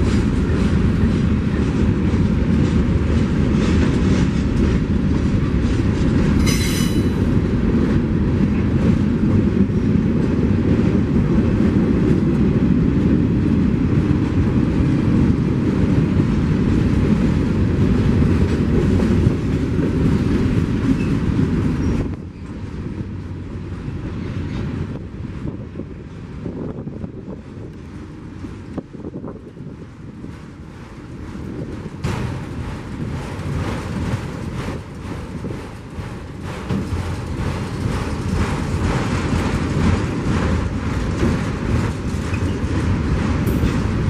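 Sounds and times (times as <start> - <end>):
train rumbling on rails: 0.0 - 44.0
high wheel squeal: 6.4 - 7.2.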